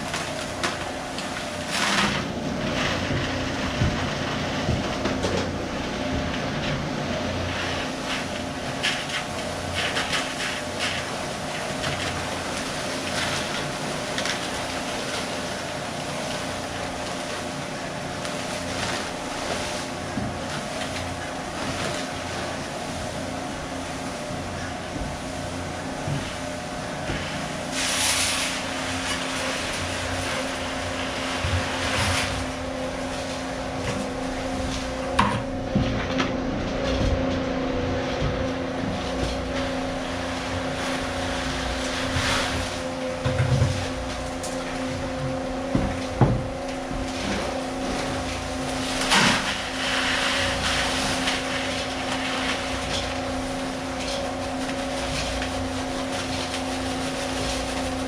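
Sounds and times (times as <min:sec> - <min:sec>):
motor running steadily: 0:00.0 - 0:58.0.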